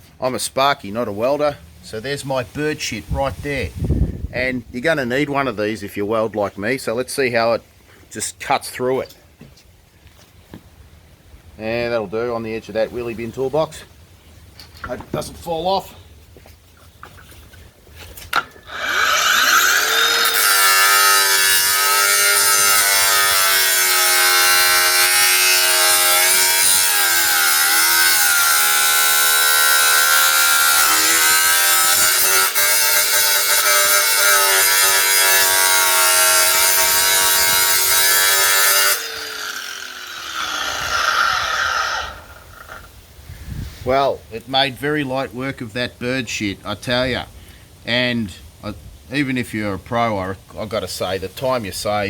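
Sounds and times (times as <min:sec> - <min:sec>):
angle grinder grinding metal: 0:18.3 - 0:42.9.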